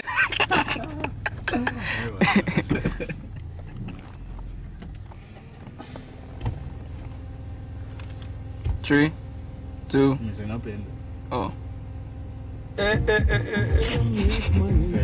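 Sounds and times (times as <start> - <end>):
person laughing: 0.0 - 4.0, 12.8 - 14.8
car engine and road hum: 0.0 - 15.0.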